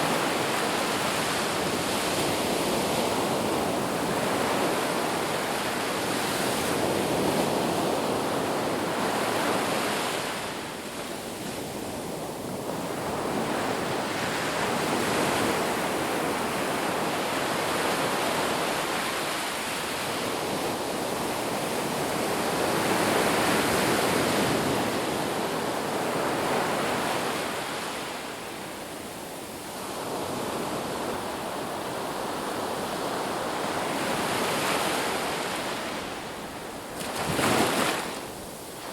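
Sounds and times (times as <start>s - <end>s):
sea waves breaking: 33.0s - 38.9s.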